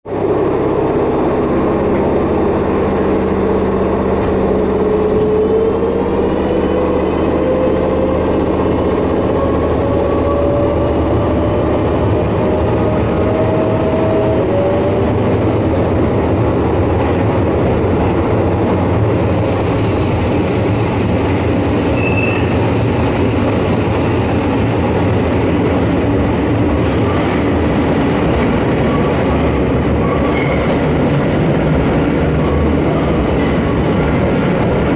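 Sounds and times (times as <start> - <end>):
train wheels rumbling: 0.1 - 34.9
wheels hissing on rail: 19.1 - 25.4
high wheel squeals: 21.8 - 22.8, 23.6 - 25.2.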